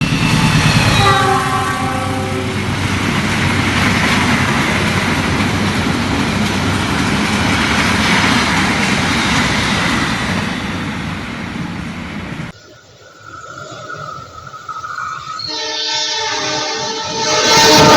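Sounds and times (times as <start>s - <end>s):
train rushing by: 0.0s - 17.9s
train horn chord: 0.4s - 2.8s, 15.5s - 17.9s.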